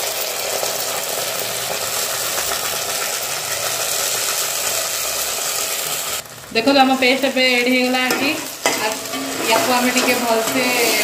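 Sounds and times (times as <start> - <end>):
spice paste sizzling in oil: 0.0 - 11.0.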